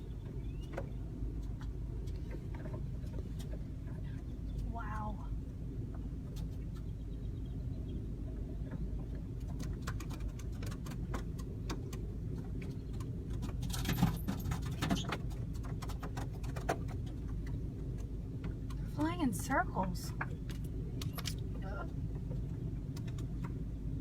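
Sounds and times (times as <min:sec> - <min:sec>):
birds tapping on car body: 0:00.0 - 0:04.7, 0:05.9 - 0:18.8
car rumble: 0:00.0 - 0:24.0.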